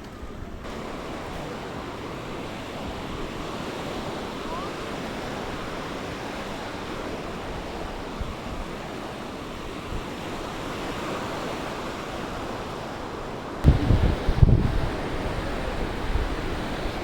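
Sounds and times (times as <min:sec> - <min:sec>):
sea waves washing on beach: 0:00.0 - 0:17.0
wind buffeting microphone: 0:05.2 - 0:17.0.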